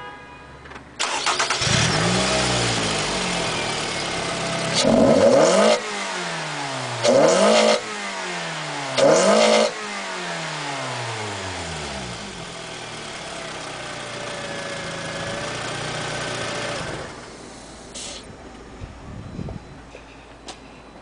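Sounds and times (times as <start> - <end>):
car engine revving then idling: 1.1 - 17.7.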